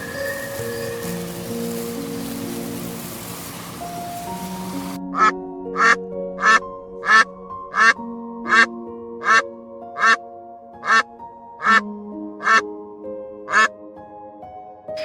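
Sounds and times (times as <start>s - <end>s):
hiss-like noise: 0.0s - 5.0s
soft piano music: 0.0s - 15.0s
animal calling: 4.8s - 9.4s, 10.0s - 10.2s, 10.8s - 11.0s, 11.6s - 11.8s, 12.4s - 12.6s, 13.5s - 13.7s.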